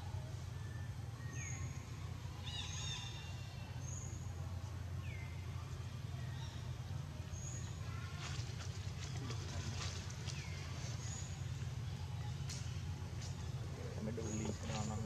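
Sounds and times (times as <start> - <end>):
birds whistling and chirping: 0.5 - 4.3.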